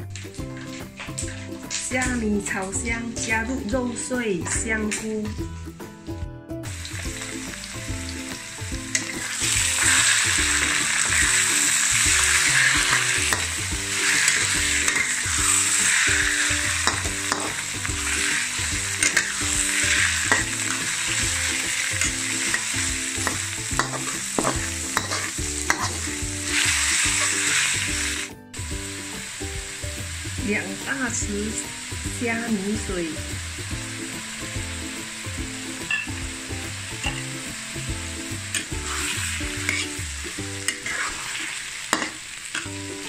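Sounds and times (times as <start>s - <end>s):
meat sizzling in hot oil: 0.0s - 5.0s, 6.6s - 43.0s
spatula stirring and tapping: 12.1s - 17.6s, 18.4s - 26.2s.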